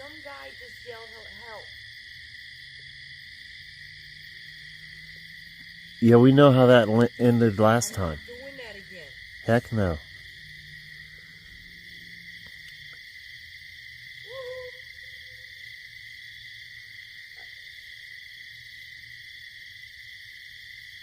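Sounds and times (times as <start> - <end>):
night insects chorus: 0.0 - 21.0
owl hoot: 14.2 - 15.5.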